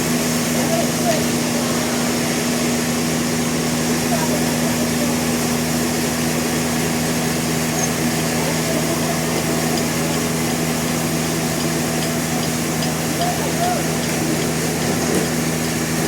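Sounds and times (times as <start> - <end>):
sawmill machinery motor drone: 0.0 - 16.0.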